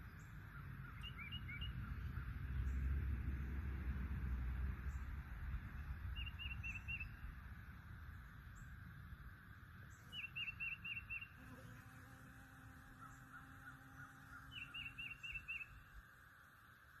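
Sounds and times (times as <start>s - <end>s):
fainter bird calling: 0.5s - 2.3s, 10.1s - 11.4s, 13.0s - 15.9s.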